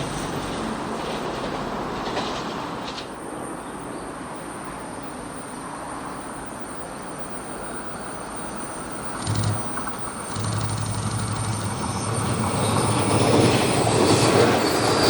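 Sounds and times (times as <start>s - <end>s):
train clatter: 0.0s - 3.5s, 9.1s - 15.0s
train wheels rumbling on rail: 0.0s - 5.3s, 9.0s - 15.0s.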